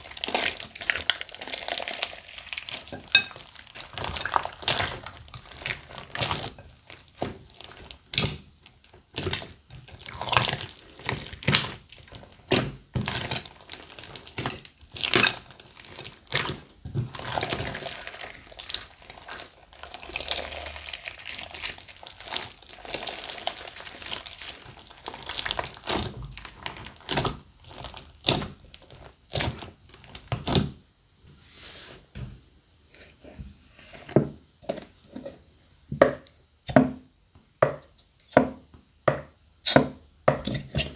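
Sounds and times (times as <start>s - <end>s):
slime squishing and popping: 0.0s - 30.7s.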